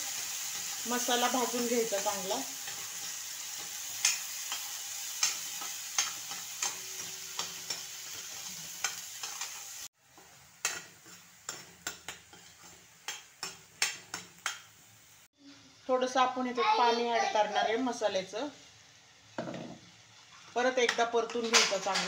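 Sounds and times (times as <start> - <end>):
paste sizzling in hot oil: 0.0 - 15.3
metal spoon scraping a pan: 0.1 - 14.7.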